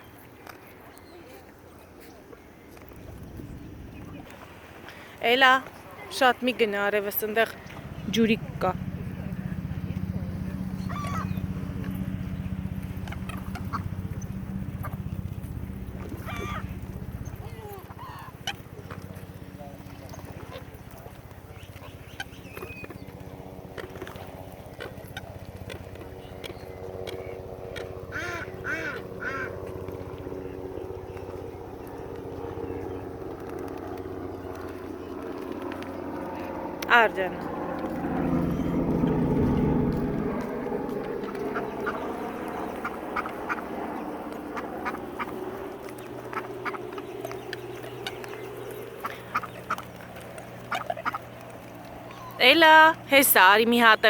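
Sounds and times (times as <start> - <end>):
low motor hum: 0.0 - 54.0
ducks quacking: 12.8 - 15.1, 16.2 - 16.8, 28.1 - 29.6, 41.2 - 45.4, 46.0 - 47.0, 49.0 - 50.0, 50.6 - 52.3.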